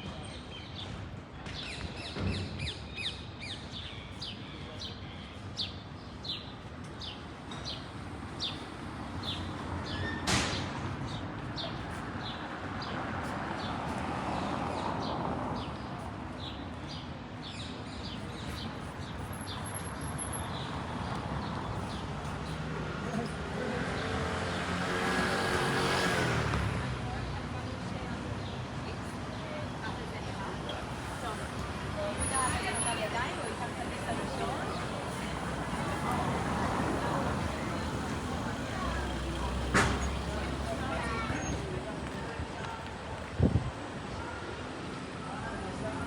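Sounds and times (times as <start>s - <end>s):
city street noise hum: 0.0s - 46.0s
footsteps on pavement: 10.8s - 16.6s, 37.6s - 44.0s.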